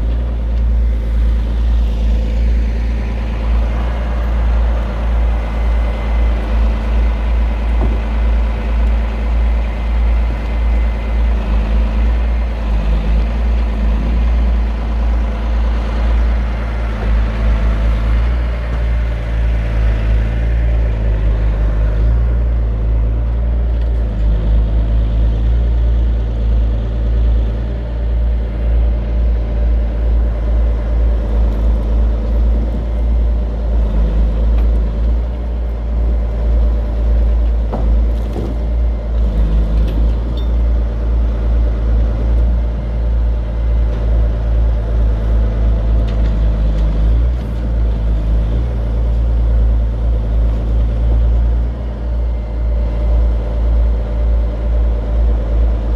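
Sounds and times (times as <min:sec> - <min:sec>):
diesel truck engine running: 0:00.0 - 0:55.9
hydraulic log loader: 0:00.0 - 0:55.9.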